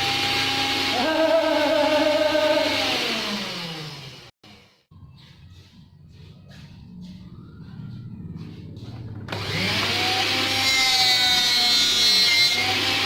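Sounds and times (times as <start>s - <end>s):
electric power tool whining: 0.0s - 4.3s, 9.3s - 13.0s.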